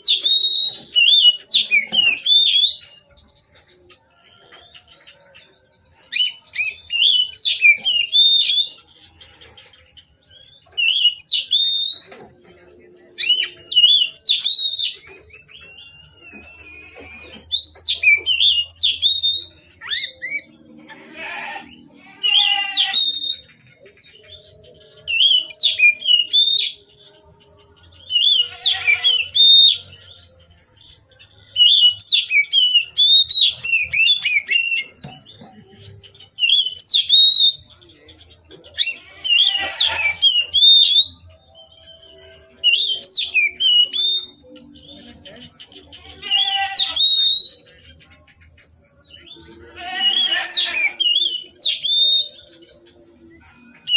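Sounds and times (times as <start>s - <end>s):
bird singing whistled phrases: 0.0s - 3.0s, 6.1s - 8.8s, 10.8s - 12.1s, 13.2s - 20.5s, 22.2s - 23.6s, 25.1s - 26.8s, 28.1s - 29.9s, 31.6s - 35.0s, 36.4s - 37.7s, 38.8s - 41.2s, 42.6s - 44.4s, 46.3s - 47.7s, 50.0s - 52.5s.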